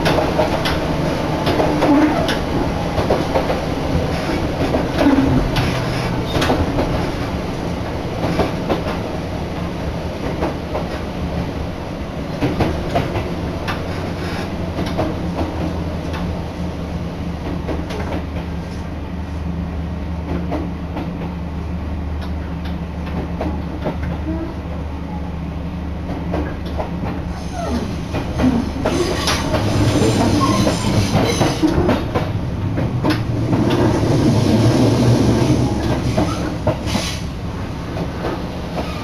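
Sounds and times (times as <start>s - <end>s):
clicks from rail joints: 0.0s - 0.8s, 1.4s - 7.3s, 12.4s - 16.3s, 26.1s - 37.3s
train running hum: 0.0s - 39.0s.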